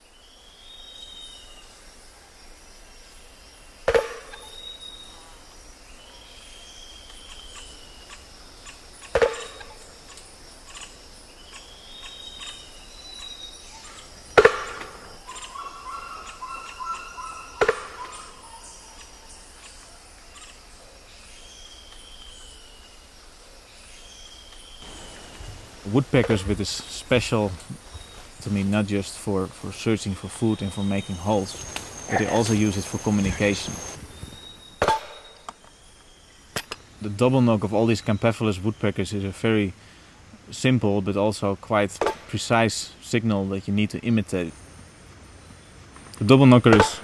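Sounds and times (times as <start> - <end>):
whistled bird calls: 0.0 - 1.8, 3.9 - 23.1, 23.7 - 37.0
high insect hum: 0.0 - 47.0.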